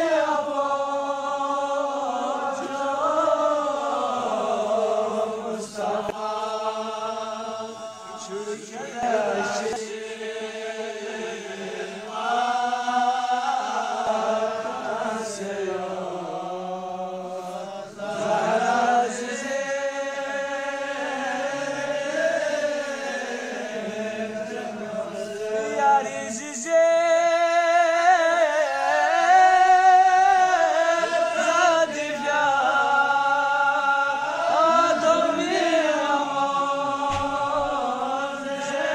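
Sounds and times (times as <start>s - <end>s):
man chanting: 0.0s - 38.9s.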